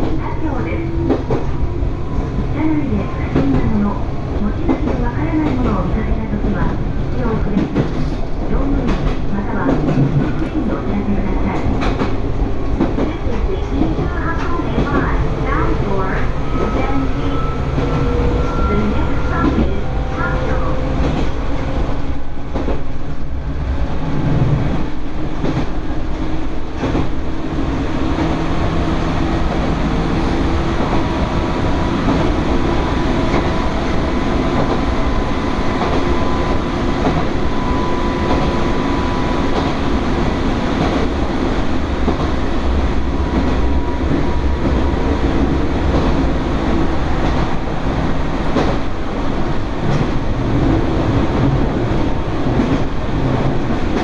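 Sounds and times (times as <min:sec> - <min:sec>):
train wheel and rail noise: 0:00.0 - 0:54.0.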